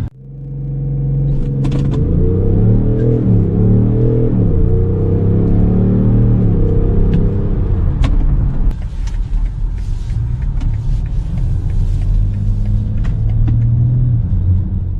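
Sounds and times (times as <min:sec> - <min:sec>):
car engine and road rumble: 0:00.0 - 0:14.9.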